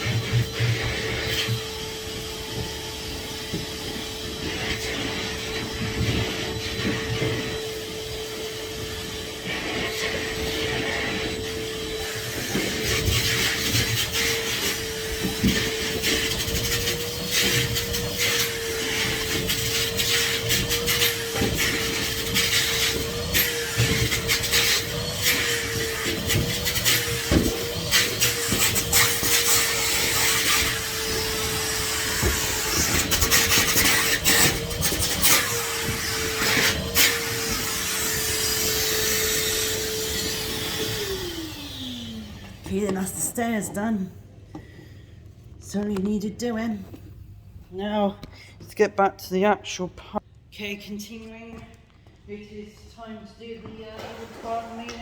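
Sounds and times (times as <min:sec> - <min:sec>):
vacuum nozzle hissing: 0:00.0 - 0:42.6
vacuum cleaner whining: 0:00.0 - 0:47.1, 0:52.8 - 0:55.0.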